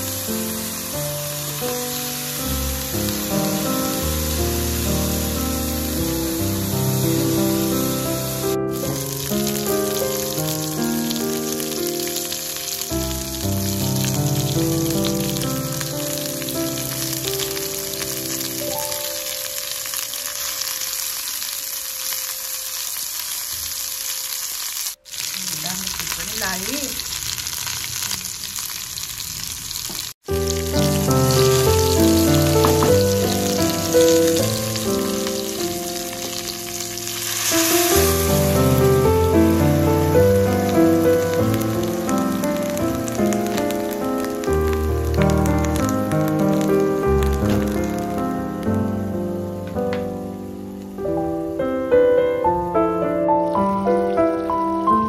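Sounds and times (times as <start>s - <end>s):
pork sizzling in oil: 0.0s - 55.0s
background music: 30.3s - 55.0s.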